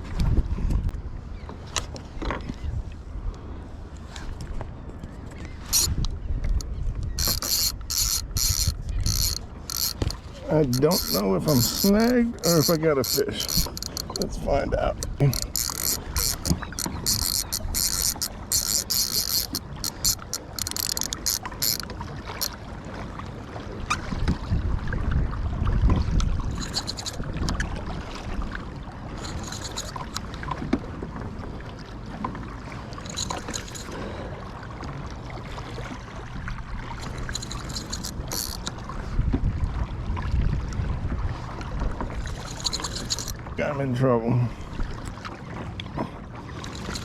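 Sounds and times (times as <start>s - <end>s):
water rumbling against kayak: 0.0s - 47.0s
wind: 0.0s - 47.0s
fishing reel drag clicking: 5.4s - 22.6s, 26.5s - 27.3s, 29.1s - 30.2s, 33.0s - 34.2s, 37.0s - 38.8s, 42.3s - 43.4s, 46.6s - 47.0s.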